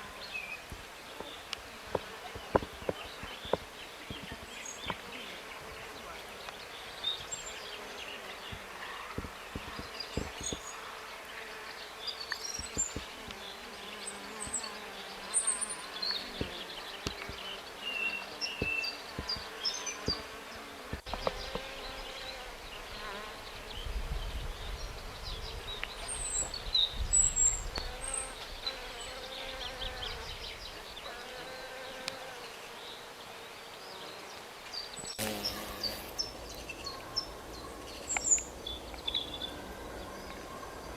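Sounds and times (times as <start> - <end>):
insect buzzing: 0.0 - 37.0.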